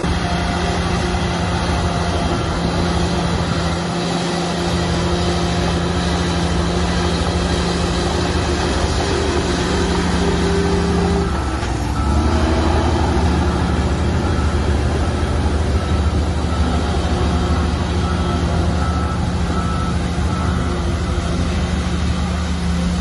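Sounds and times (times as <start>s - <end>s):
diesel engine humming: 0.0s - 23.0s.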